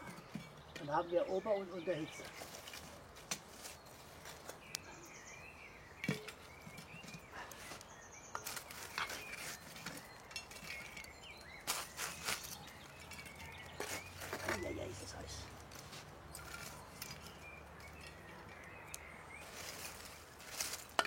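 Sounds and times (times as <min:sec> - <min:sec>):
birds singing: 0:00.0 - 0:21.0
embers scraping and clinking on lid: 0:06.0 - 0:21.0.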